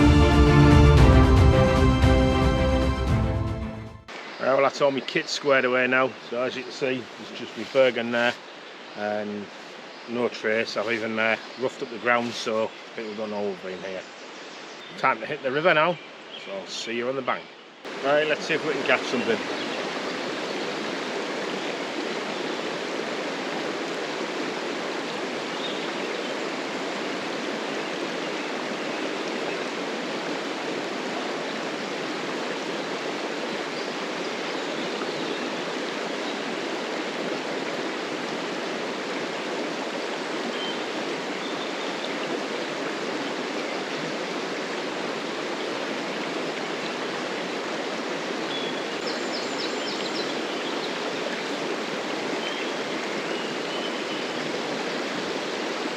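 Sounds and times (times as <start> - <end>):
river flowing over rocks: 17.9 - 55.9.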